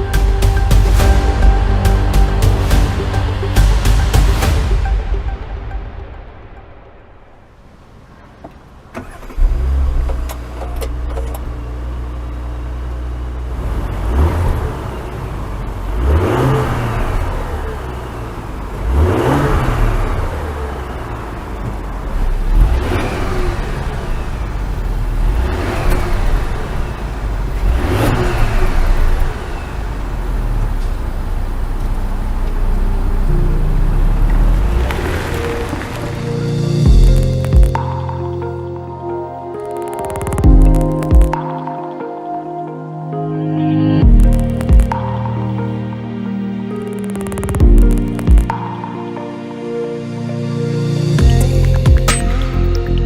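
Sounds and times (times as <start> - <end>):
car engine starting and revving: 0.0 - 39.0.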